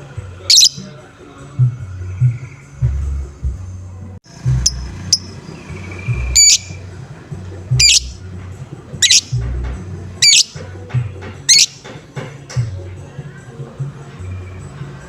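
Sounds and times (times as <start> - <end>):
low drum beat music: 0.0 - 15.0
lovebird squawking: 0.5 - 0.9, 4.6 - 6.9, 7.7 - 8.2, 9.0 - 9.6, 10.2 - 10.7, 11.4 - 11.9.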